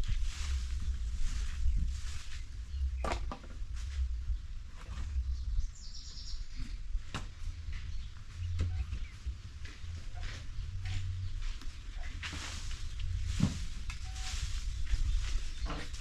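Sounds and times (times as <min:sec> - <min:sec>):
steady low rumble: 0:00.0 - 0:16.0
bird chirping: 0:04.3 - 0:06.8, 0:07.4 - 0:16.0.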